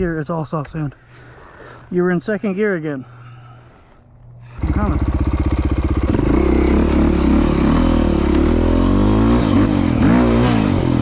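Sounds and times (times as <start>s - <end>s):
single-cylinder engine revving: 4.6s - 11.0s.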